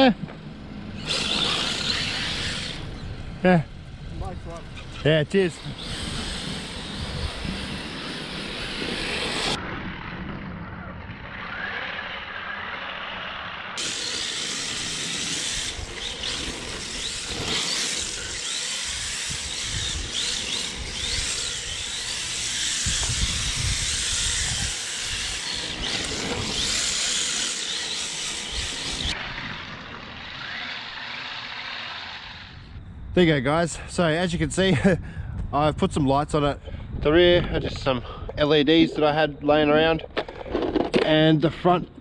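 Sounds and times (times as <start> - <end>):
rc car motor whining: 0.9 - 9.6, 11.3 - 32.8.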